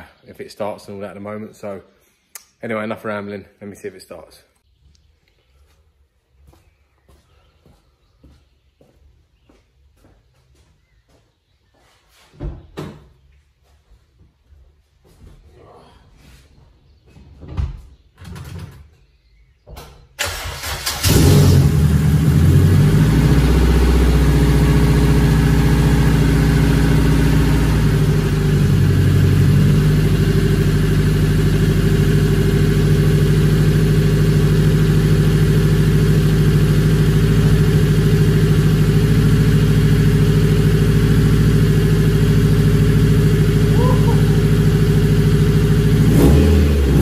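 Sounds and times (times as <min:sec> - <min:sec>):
car engine idling: 0:20.3 - 0:47.0.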